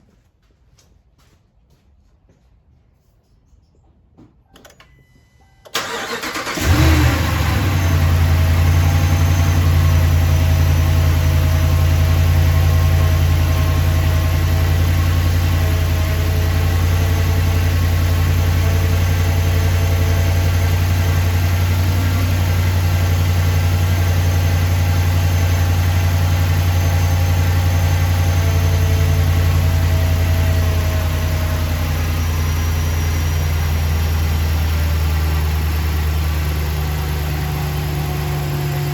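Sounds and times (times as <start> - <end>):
engine cranking and starting: 5.7 - 10.0
engine idling: 5.8 - 38.9.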